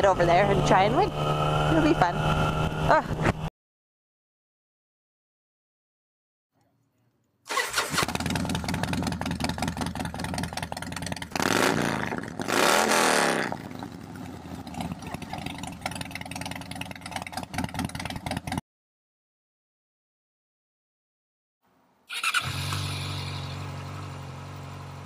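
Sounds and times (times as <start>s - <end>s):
motorcycle engine starting and revving: 0.0s - 3.5s, 7.5s - 18.6s, 22.1s - 25.0s.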